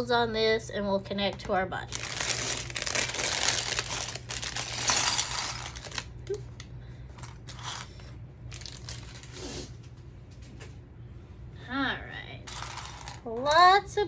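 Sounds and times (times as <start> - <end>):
plastic bag crinkling and tearing: 1.9 - 6.4, 8.5 - 9.7.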